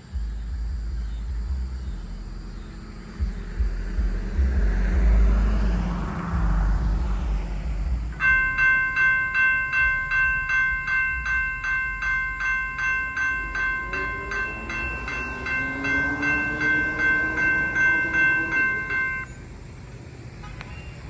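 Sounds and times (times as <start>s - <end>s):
low tone: 0.1s - 19.4s
crossing warning bell ringing: 8.1s - 19.5s.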